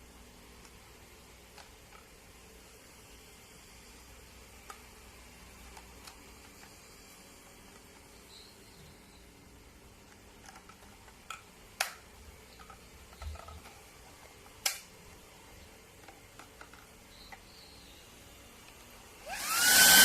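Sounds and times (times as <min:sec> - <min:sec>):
sharp plastic clicks: 0:10.0 - 0:13.8, 0:14.5 - 0:15.0.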